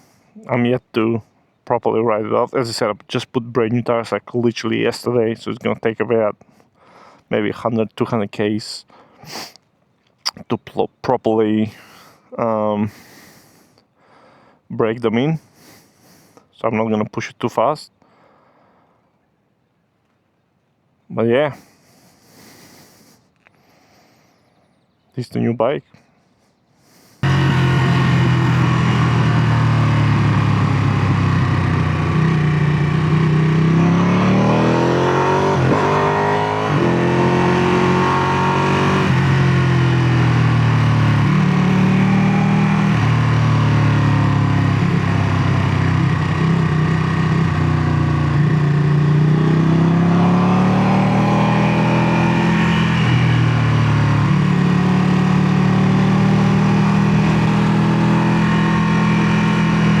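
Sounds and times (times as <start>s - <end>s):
motorcycle engine revving: 27.2s - 60.0s.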